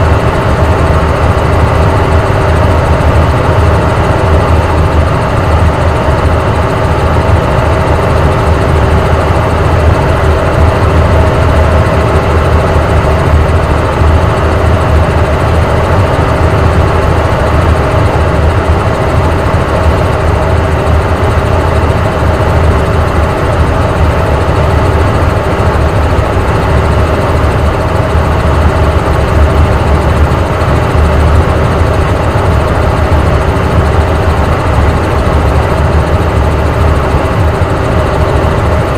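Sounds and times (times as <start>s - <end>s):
helicopter turbine and rotor drone: 0.0s - 38.9s.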